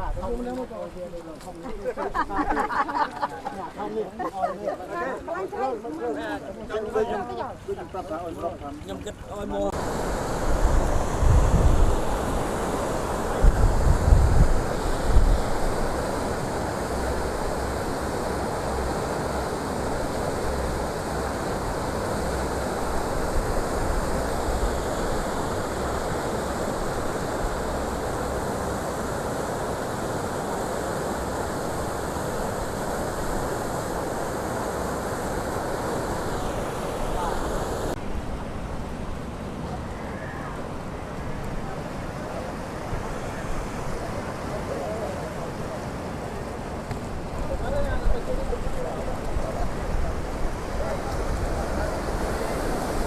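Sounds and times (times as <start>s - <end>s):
wind buffeting microphone: 9.0s - 39.8s
fast-flowing floodwater rushing: 9.5s - 53.0s.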